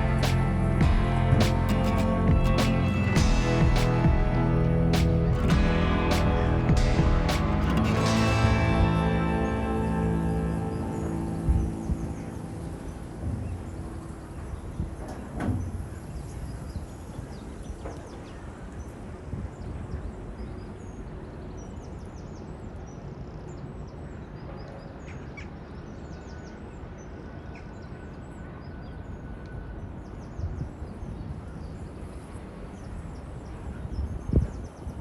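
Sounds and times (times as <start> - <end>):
wind through trees: 0.0 - 35.0
wind buffeting microphone: 29.7 - 35.0.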